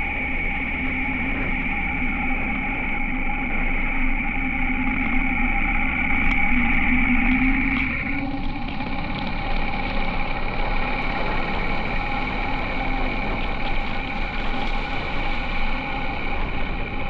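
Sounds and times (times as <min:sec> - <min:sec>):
motorcycle engine running: 0:07.3 - 0:17.0.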